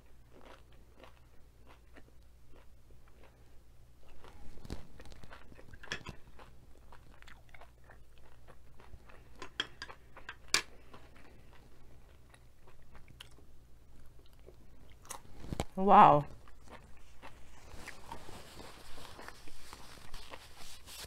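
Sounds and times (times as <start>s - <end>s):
crunching tortilla chips: 0.2s - 3.4s, 4.0s - 9.4s, 16.4s - 21.0s.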